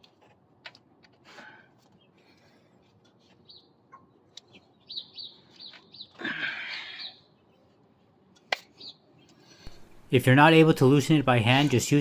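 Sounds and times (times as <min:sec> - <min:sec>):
small birds chirping: 0:01.8 - 0:10.0.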